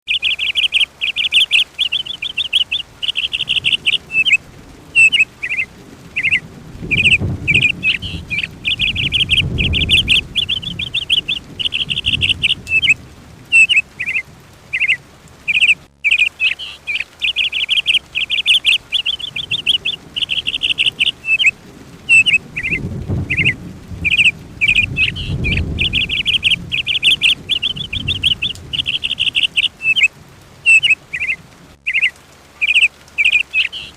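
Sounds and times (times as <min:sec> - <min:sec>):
songbird chirping and trilling: 0:00.0 - 0:04.4, 0:05.0 - 0:33.9
soft low rumble: 0:03.2 - 0:16.0, 0:18.8 - 0:31.8.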